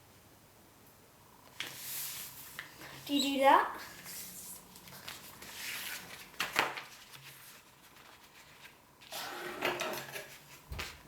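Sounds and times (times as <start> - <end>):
paper rustling and folding: 1.5 - 9.2, 9.8 - 11.0.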